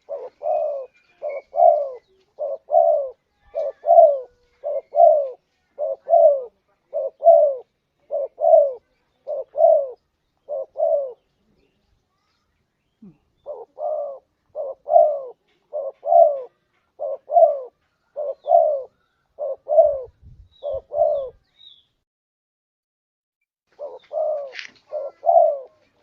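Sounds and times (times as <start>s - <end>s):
dove cooing: 0.0s - 11.4s, 13.0s - 21.5s, 23.7s - 26.0s.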